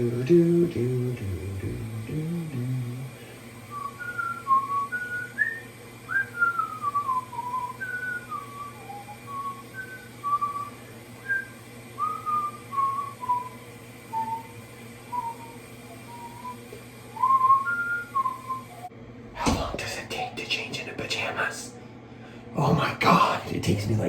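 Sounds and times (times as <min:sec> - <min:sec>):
person whistling a tune: 0:03.7 - 0:18.9.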